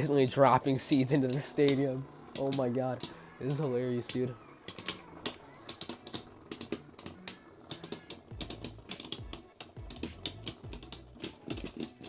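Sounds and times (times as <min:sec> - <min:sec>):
spinning tops clashing: 0:00.0 - 0:12.0.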